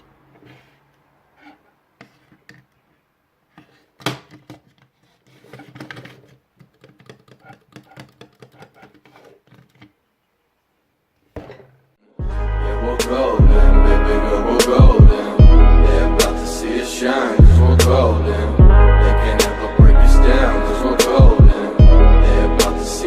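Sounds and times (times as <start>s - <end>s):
plastic parts clicking and knocking: 3.5s - 10.0s.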